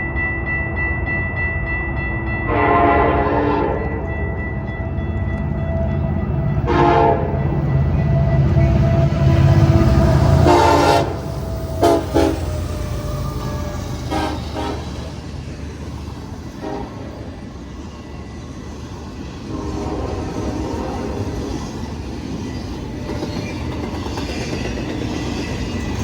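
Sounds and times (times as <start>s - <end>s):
passing train rumble: 0.0s - 26.0s
locomotive horn blasts: 2.5s - 4.0s, 6.6s - 7.5s, 9.0s - 12.8s, 14.0s - 15.1s, 16.6s - 17.2s, 19.5s - 21.2s.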